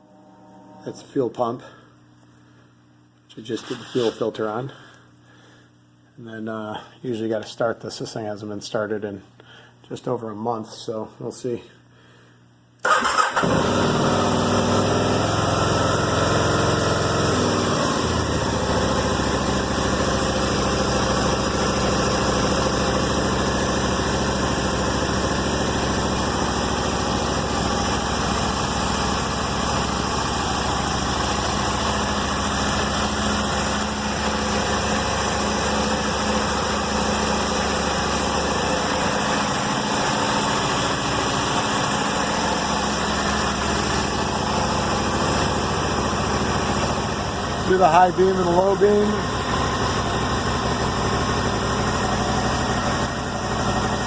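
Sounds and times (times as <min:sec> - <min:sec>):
motorcycle engine idling: 0:12.9 - 0:54.0.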